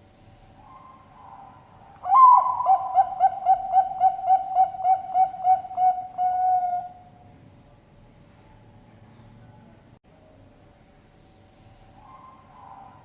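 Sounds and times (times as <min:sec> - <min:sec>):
dove cooing: 0:00.6 - 0:07.1.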